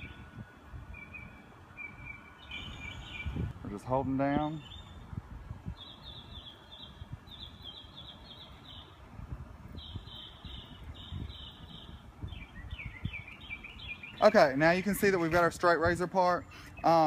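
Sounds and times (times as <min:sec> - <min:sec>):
songbird chirping: 0:00.0 - 0:17.0.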